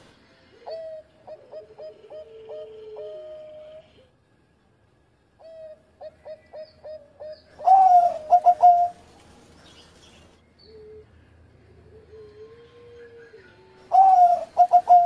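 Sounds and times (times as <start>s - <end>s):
dove cooing: 0.5s - 4.1s, 5.4s - 9.0s, 11.8s - 15.0s
faint lower coo: 0.5s - 4.2s, 10.6s - 15.0s.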